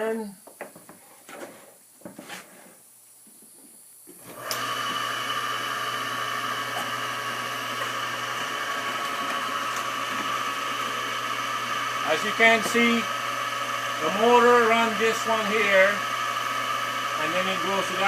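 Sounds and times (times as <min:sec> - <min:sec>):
drum sander motor running: 0:04.2 - 0:18.0.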